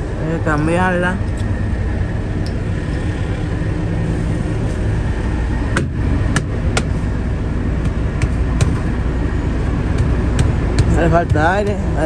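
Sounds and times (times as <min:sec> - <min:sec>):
diesel truck engine idling: 0:00.0 - 0:12.0
sharp knocks: 0:05.7 - 0:07.0, 0:07.8 - 0:08.9, 0:09.9 - 0:11.8.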